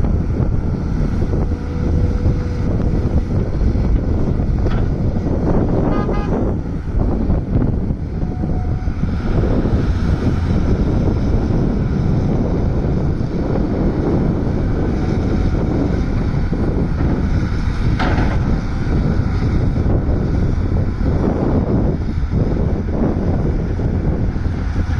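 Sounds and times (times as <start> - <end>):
diesel engine running under load: 0.0 - 24.9.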